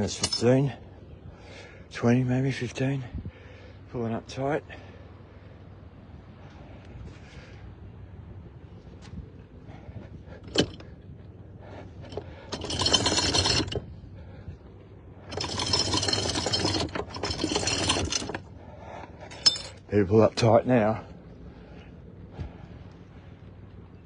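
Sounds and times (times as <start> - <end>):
anchor chain rattling: 0.0 - 1.0, 9.8 - 21.1.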